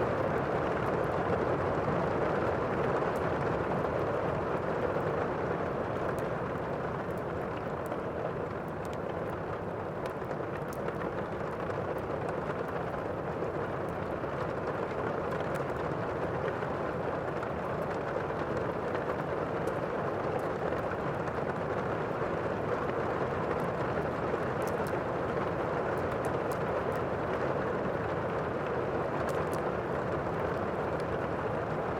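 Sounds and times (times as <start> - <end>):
wood fire crackling: 0.1 - 31.9.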